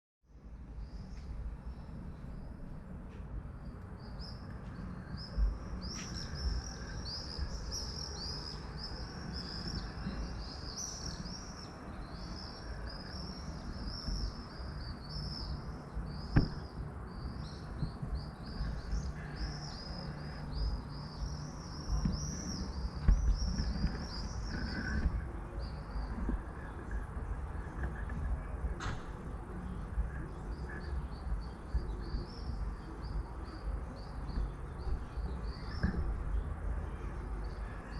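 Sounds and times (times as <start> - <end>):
songbirds chirping: 0.3 - 37.9
steady low rumble: 0.3 - 37.9
sharp knocks: 16.3 - 16.8.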